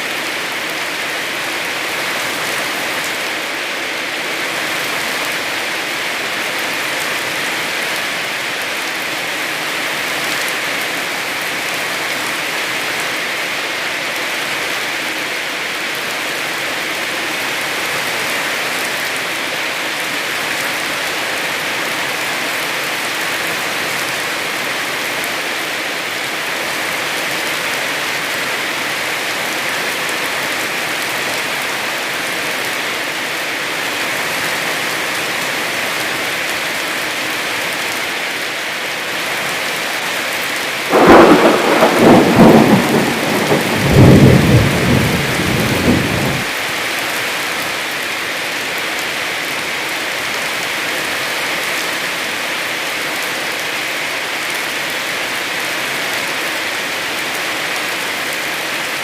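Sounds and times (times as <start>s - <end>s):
heavy rain falling: 0.0s - 59.0s
thunderclap rumbling: 40.9s - 46.5s.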